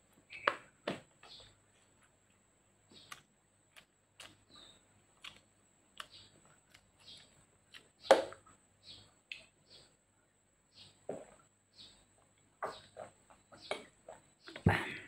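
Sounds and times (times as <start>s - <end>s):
chewing and lip smacks: 3.0s - 8.0s.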